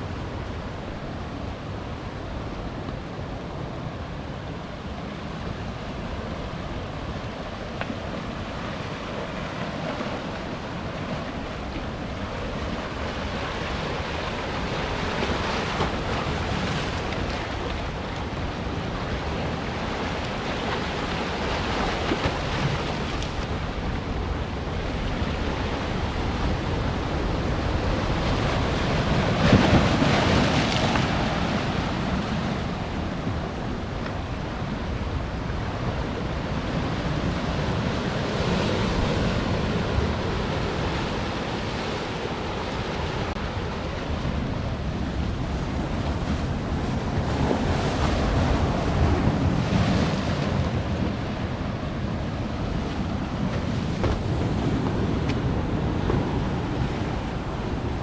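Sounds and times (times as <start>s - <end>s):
wind buffeting microphone: 43.2s - 58.0s.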